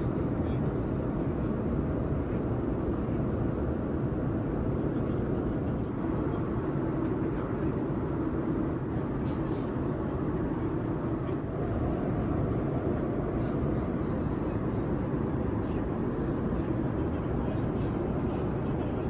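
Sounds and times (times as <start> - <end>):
airplane cabin engine rumble: 11.2 - 19.0.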